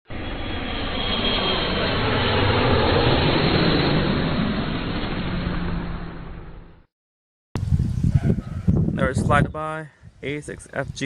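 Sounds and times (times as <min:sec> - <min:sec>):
jet airliner engines passing: 0:00.1 - 0:06.9.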